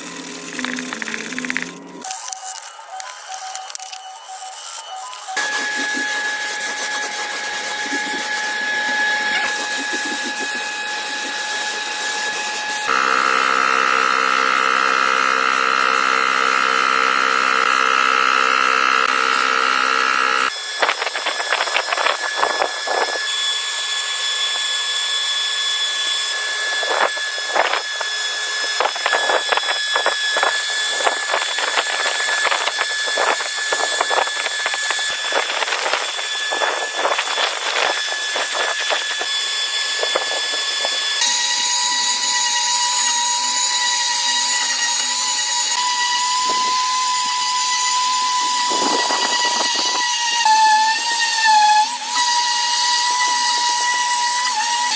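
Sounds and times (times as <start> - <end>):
scraping with sharp clicks: 0.0 - 8.6
power tool whining: 0.0 - 54.9.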